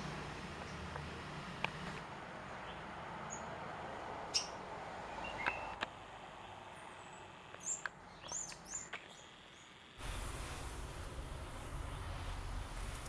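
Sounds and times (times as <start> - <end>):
small birds chirping: 2.5 - 3.6, 4.3 - 5.8, 6.8 - 10.4
faint background hiss: 9.7 - 13.0.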